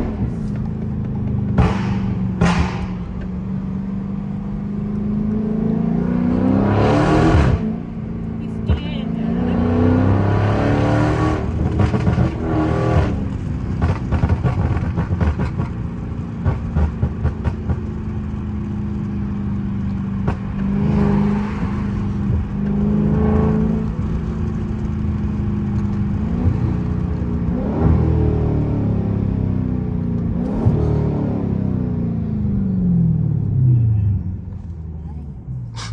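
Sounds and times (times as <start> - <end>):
exhaust crackles and pops: 0.0 - 3.6, 11.4 - 20.9, 21.6 - 28.1, 30.0 - 30.8
car engine revving: 0.0 - 35.9.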